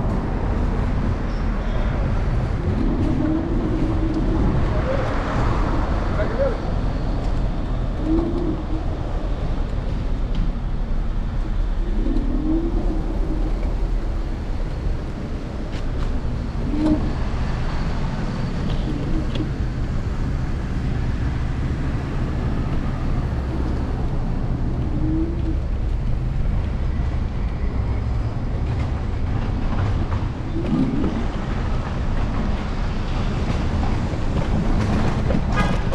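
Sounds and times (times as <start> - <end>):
city street traffic: 0.0 - 35.9
road and wind rumble: 0.0 - 35.9.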